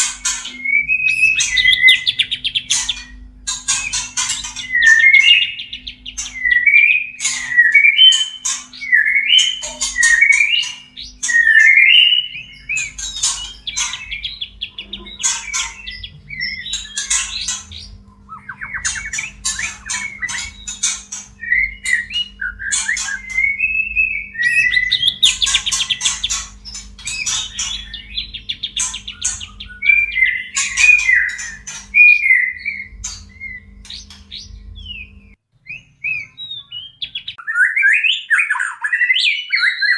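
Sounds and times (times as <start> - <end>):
bird clicking and rattling notes: 0.0 - 6.5, 12.4 - 23.6, 24.4 - 32.1
bird whistled song: 0.0 - 39.9.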